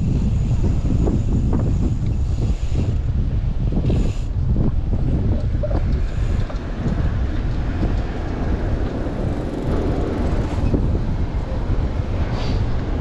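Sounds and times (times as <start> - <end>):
wind buffeting microphone: 0.0 - 13.0
traffic noise: 3.7 - 13.0.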